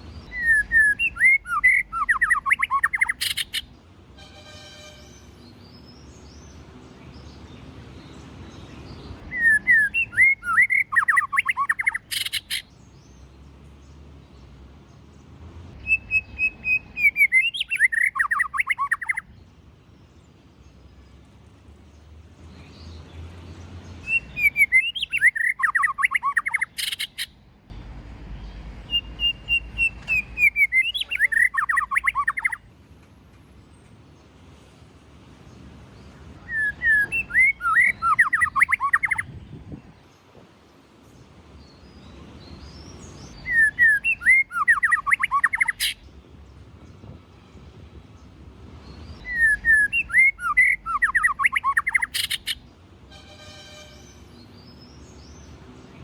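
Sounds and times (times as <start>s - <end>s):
bird singing whistled phrases: 0.3s - 3.6s, 9.3s - 12.6s, 15.8s - 19.3s, 24.0s - 27.3s, 28.9s - 32.6s, 36.4s - 39.3s, 43.4s - 46.0s, 49.2s - 52.6s.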